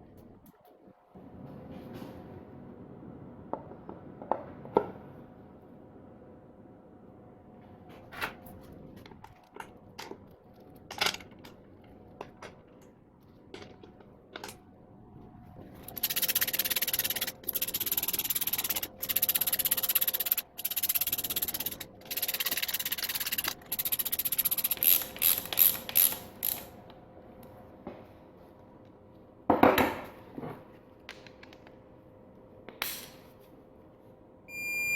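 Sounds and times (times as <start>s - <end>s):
ratchet wrench clicking: 15.9s - 26.7s.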